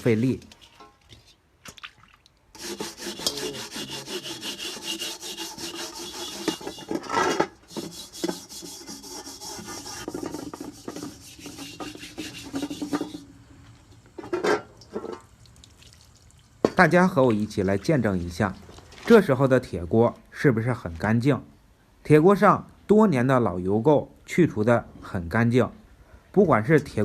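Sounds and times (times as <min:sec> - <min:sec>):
steel wool scrubbing a wok: 0:02.6 - 0:13.4.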